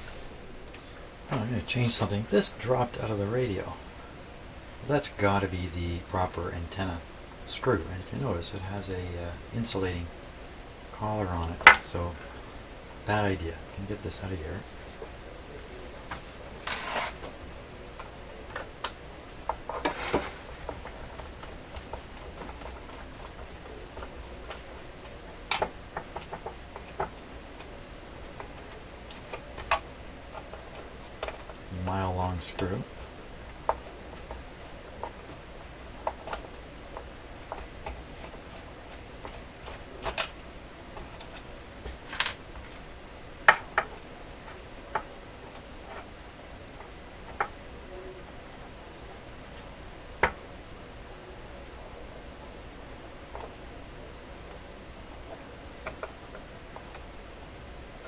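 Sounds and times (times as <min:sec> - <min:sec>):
low steady hum: 0:00.0 - 0:58.0
small clicks and taps: 0:18.0 - 0:31.6, 0:33.5 - 0:42.8, 0:55.2 - 0:57.1
scraping rustle: 0:19.6 - 0:25.3.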